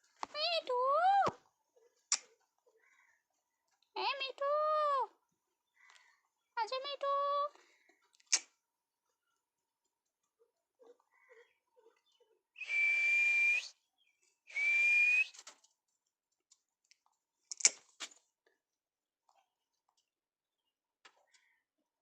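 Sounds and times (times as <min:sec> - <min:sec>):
long high whistles: 0:12.6 - 0:13.7, 0:14.5 - 0:15.4.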